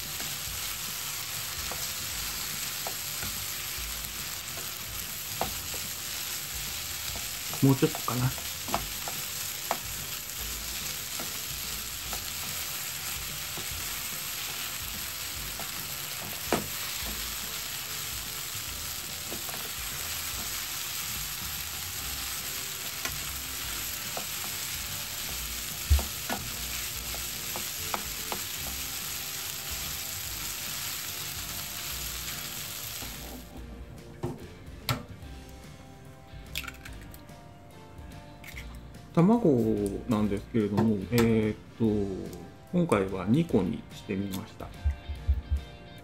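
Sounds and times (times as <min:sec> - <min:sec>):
rice sizzling in frying pan: 0:00.0 - 0:33.6.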